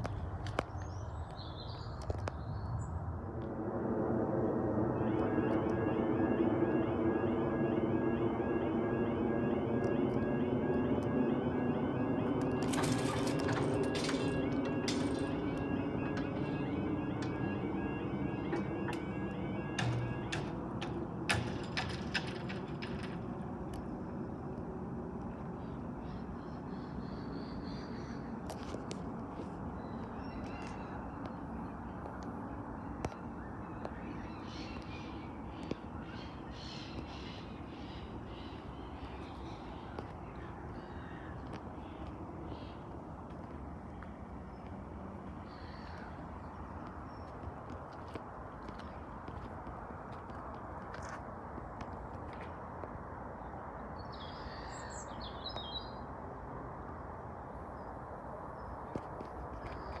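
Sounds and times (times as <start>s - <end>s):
steady outdoor rumble: 0.0s - 60.0s
birds calling: 32.8s - 47.4s.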